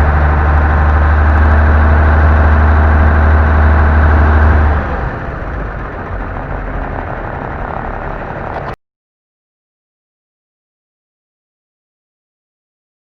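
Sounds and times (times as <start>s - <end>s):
diesel truck engine idling: 0.0s - 8.8s.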